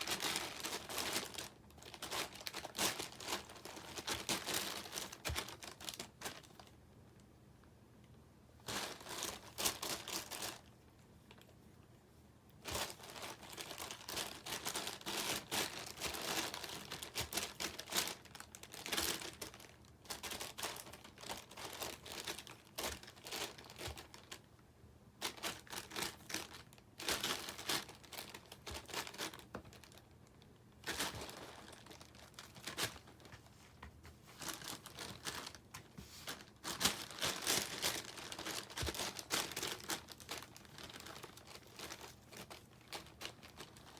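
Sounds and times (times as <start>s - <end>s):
plastic wrapper crinkling: 0.0s - 6.8s, 8.6s - 11.5s, 12.6s - 24.5s, 25.2s - 43.9s.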